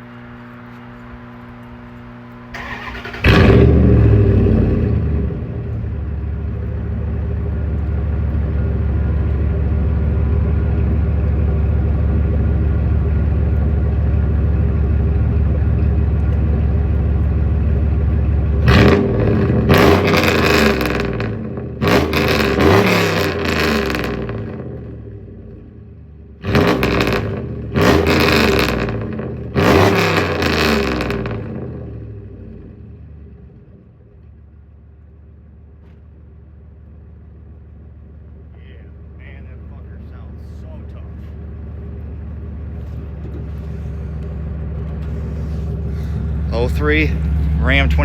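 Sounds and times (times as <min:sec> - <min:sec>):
engine cranking: 0:02.5 - 0:04.4
loud engine idling and revving: 0:02.5 - 0:33.8, 0:37.2 - 0:48.0.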